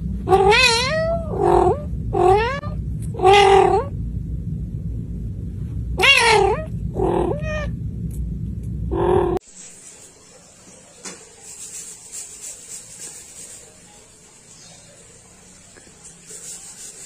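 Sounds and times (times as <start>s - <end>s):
cat yowling: 0.3s - 3.9s, 6.0s - 7.7s.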